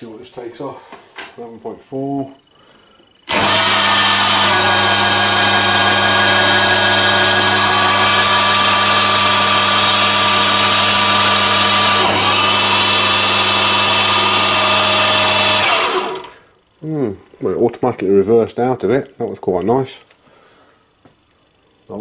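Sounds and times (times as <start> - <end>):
lathe motor whining: 3.3 - 16.4.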